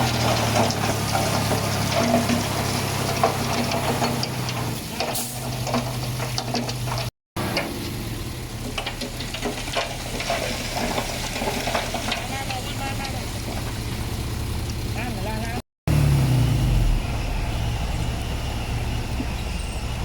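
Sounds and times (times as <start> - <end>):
stones crunching: 0.0 - 7.1, 8.6 - 14.1
diesel earthmoving machinery running: 0.0 - 20.0.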